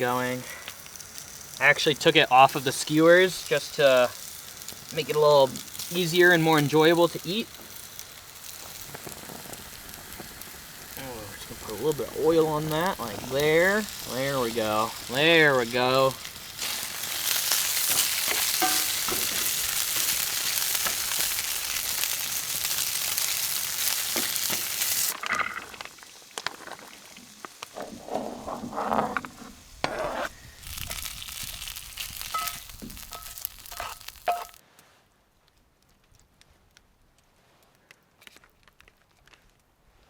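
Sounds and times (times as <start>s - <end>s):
chicken sizzling in hot oil: 0.0s - 28.6s, 29.3s - 34.6s
clicks and scrapes in pan: 17.9s - 19.5s, 32.3s - 34.6s.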